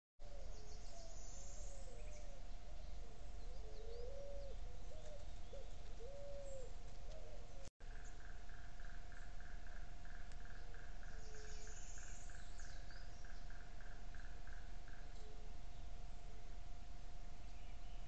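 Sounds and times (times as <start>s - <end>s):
birds hooting: 0.2s - 15.5s
faint hum and hiss: 0.2s - 18.0s.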